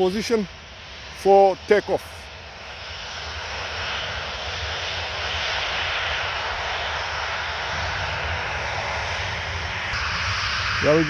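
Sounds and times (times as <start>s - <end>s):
jet engines at taxi thrust: 0.0s - 11.0s
low rumble: 4.1s - 11.0s.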